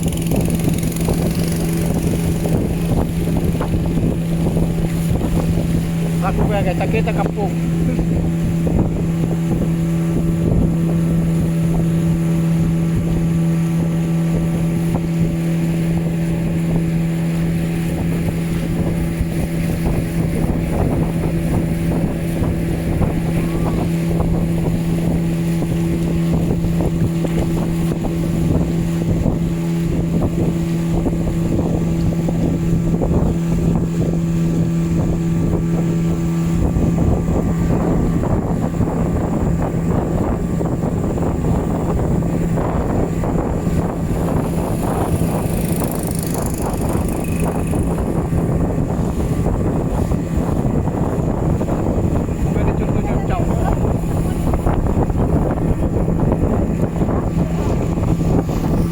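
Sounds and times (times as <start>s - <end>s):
motorboat engine humming: 0.0s - 58.9s
wind buffeting microphone: 0.0s - 58.9s.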